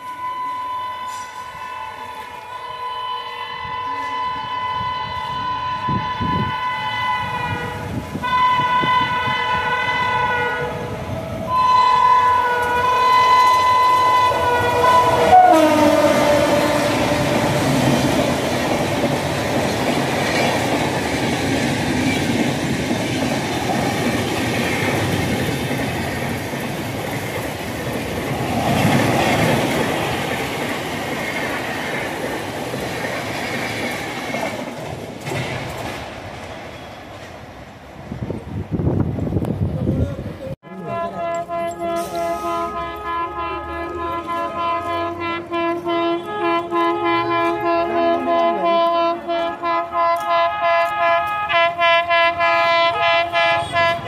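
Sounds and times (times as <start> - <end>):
train horn blasts: 0.0 - 19.3, 40.6 - 54.0
train coaches rumbling past: 0.0 - 54.0
train wheel clatter: 16.2 - 37.6.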